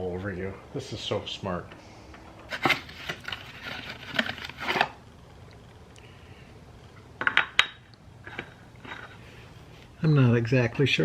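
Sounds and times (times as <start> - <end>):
clattering and scraping: 2.4 - 5.0, 7.2 - 9.4.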